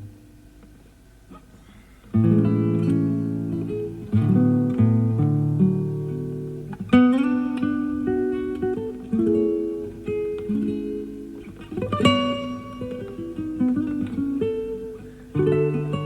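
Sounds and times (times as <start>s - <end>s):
classical guitar plucked notes: 0.0s - 16.0s.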